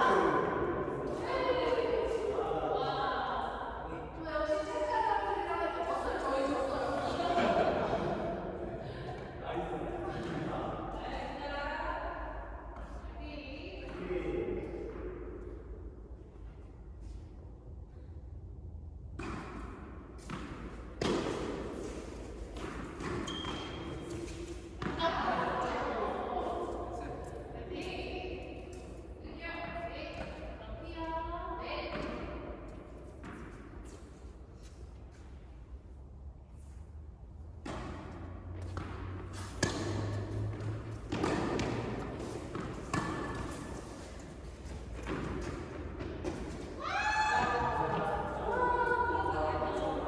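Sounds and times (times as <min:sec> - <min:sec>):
indoor tennis hall noise: 0:00.0 - 0:50.0
tennis ball hit by racket: 0:20.2 - 0:25.0, 0:37.6 - 0:44.0.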